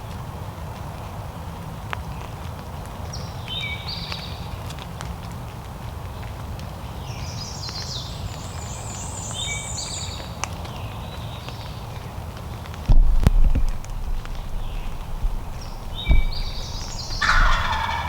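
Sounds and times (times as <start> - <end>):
low rumble of wind: 0.0 - 18.0
loud bump: 12.9 - 18.0.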